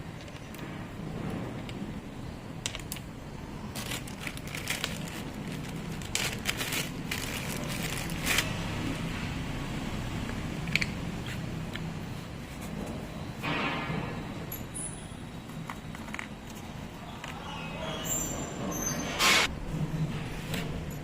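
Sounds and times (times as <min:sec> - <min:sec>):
hard parts clicking and rattling: 0:03.7 - 0:08.6.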